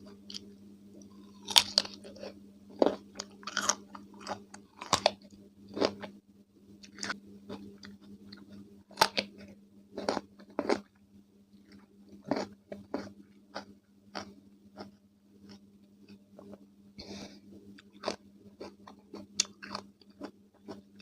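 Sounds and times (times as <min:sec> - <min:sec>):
low hum: 0:00.0 - 0:21.0
cucumber crunching and chewing: 0:01.2 - 0:06.1, 0:06.8 - 0:10.9, 0:11.7 - 0:15.6, 0:17.8 - 0:20.9.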